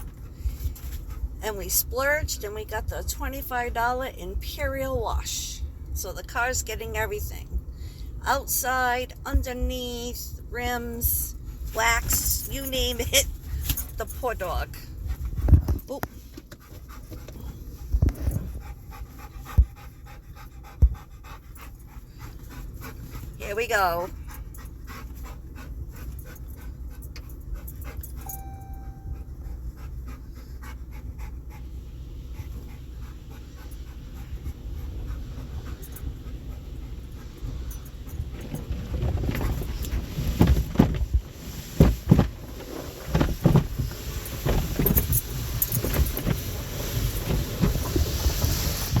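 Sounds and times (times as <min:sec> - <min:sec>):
dog panting: 0:16.2 - 0:40.2
car wash water spray: 0:40.0 - 0:49.0.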